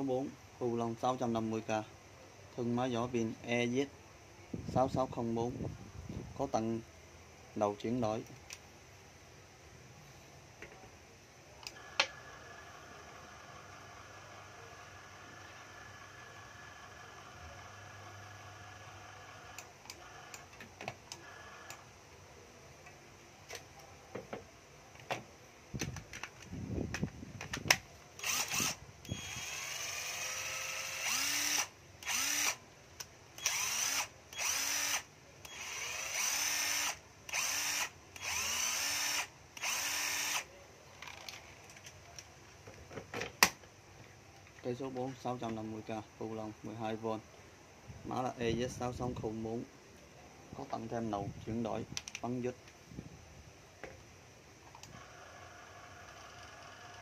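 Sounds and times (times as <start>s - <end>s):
drill motor whining: 11.6s - 20.5s, 21.1s - 21.9s, 28.2s - 32.6s, 33.4s - 40.5s, 54.8s - 57.0s.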